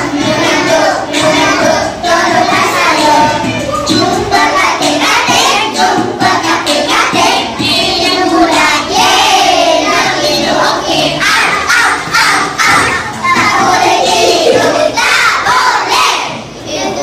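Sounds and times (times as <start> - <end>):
music playing: 0.0 - 15.2
children singing: 0.0 - 17.0.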